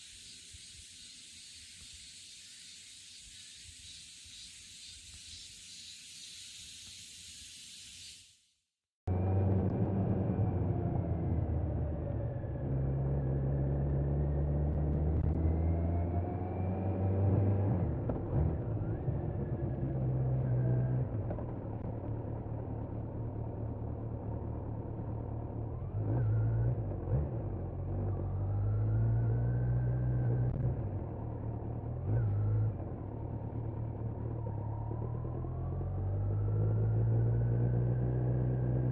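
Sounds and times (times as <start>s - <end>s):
short high hiss: 0.0s - 8.6s
motorcycle engine revving: 9.1s - 38.9s.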